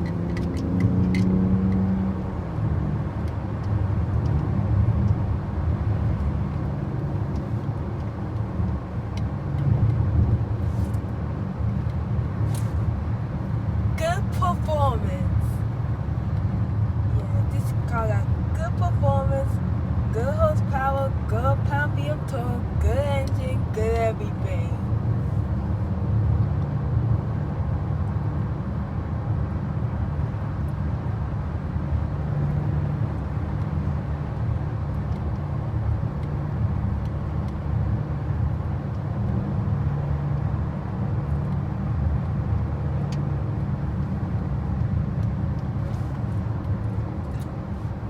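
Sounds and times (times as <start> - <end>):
car engine low rumble: 0.0 - 48.0
tyre and road noise: 0.0 - 48.0.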